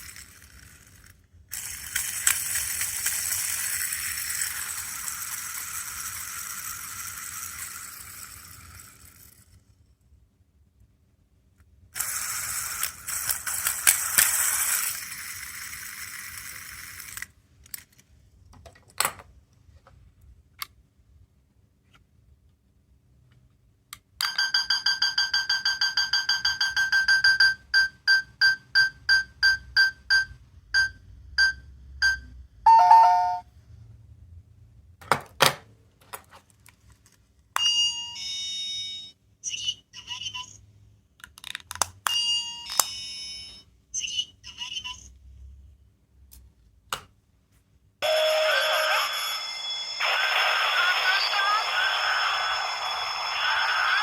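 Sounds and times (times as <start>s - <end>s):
short beeping melody: 31.4s - 33.4s
button clicks: 32.7s - 33.4s
electronic toy sounds: 39.4s - 40.6s, 42.2s - 45.2s, 48.0s - 54.0s.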